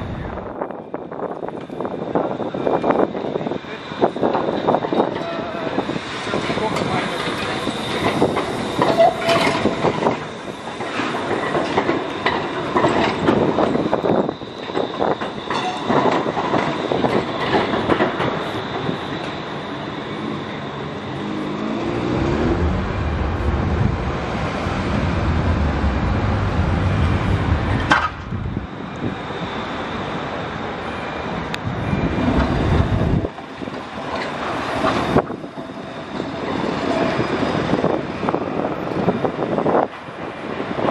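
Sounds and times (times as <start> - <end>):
heavy low rumble: 0.0 - 0.8, 21.2 - 29.2
tram wheels rumbling on rails: 0.0 - 40.9.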